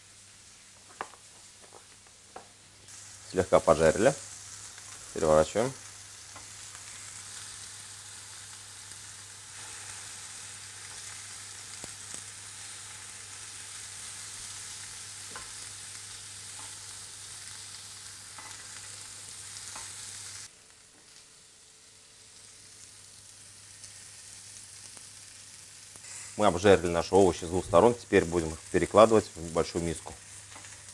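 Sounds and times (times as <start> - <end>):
vegetables sizzling in grill pan: 0.0 - 30.9
tongs tapping pan: 18.4 - 18.6.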